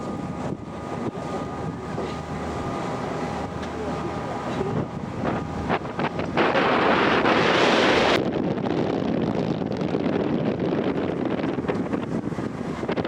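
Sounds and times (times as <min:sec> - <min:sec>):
water rushing: 0:00.0 - 0:08.2
wind buffeting microphone: 0:00.0 - 0:13.0.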